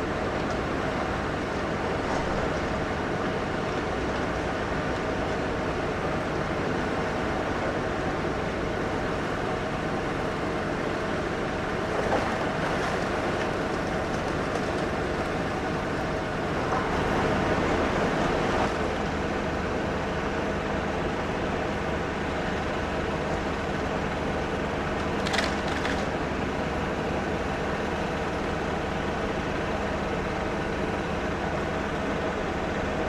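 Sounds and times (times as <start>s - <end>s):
heavy machinery engines running: 0.0s - 33.0s
masonry being pulled down: 24.4s - 28.1s.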